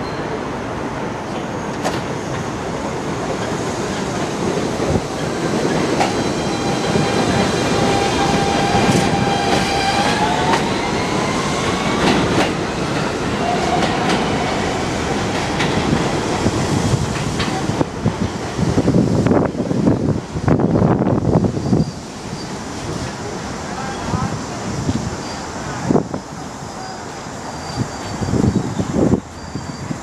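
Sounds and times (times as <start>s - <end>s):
high train whine: 0.0s - 30.0s
subway train rumble: 0.0s - 30.0s
wheels clacking over rail joints: 11.7s - 18.6s.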